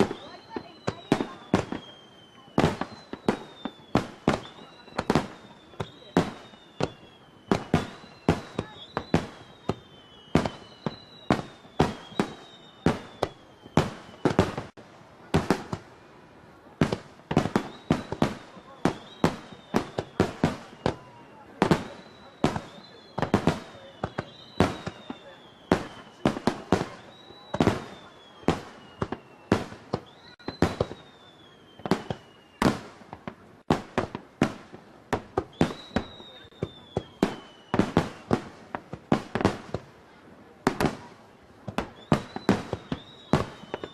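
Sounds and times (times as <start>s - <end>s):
faint high descending whistle: 0.0s - 14.6s, 17.6s - 32.7s, 35.5s - 38.2s, 42.0s - 43.9s
fireworks bursting: 0.0s - 43.9s.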